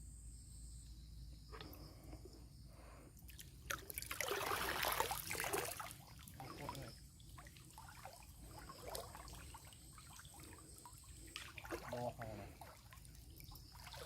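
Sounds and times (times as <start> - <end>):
water splashing and trickling: 3.2 - 14.0
water dripping: 3.3 - 14.0.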